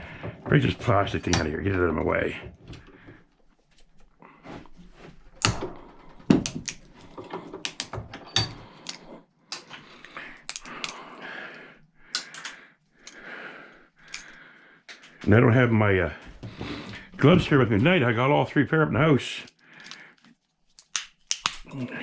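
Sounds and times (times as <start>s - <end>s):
plastic parts cracking and clicking: 5.2s - 11.1s, 12.0s - 13.2s, 14.0s - 15.2s, 19.4s - 21.9s.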